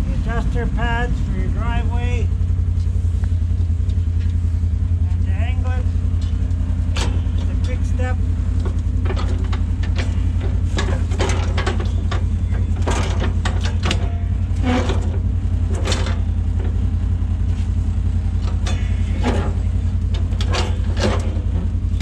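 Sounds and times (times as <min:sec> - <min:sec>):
vehicle engine idling: 0:00.0 - 0:22.0
metal clicks and clunks of plow blade: 0:06.1 - 0:07.9, 0:08.5 - 0:17.0, 0:18.2 - 0:22.0.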